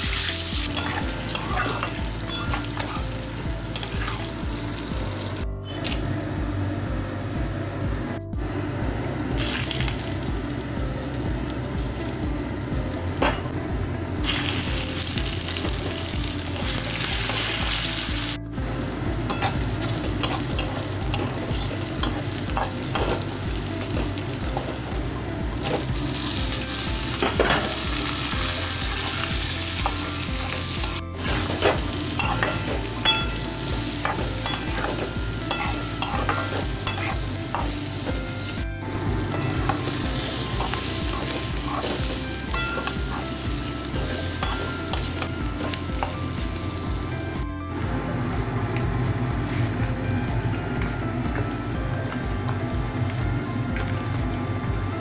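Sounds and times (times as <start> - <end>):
spices and onions frying in oil: 0.0 - 55.0
spatula scraping a wok: 40.5 - 42.2.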